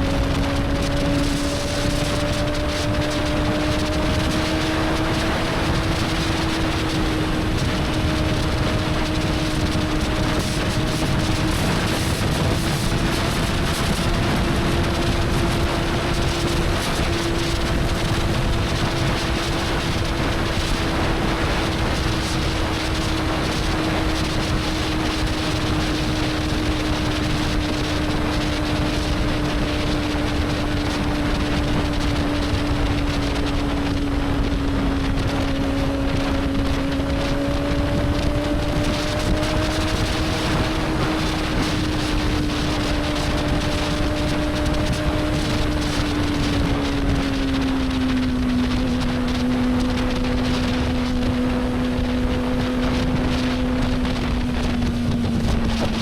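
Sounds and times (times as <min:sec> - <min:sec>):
motorcycle engine cruising: 0:00.0 - 0:56.0
wind rush on microphone: 0:00.0 - 0:56.0.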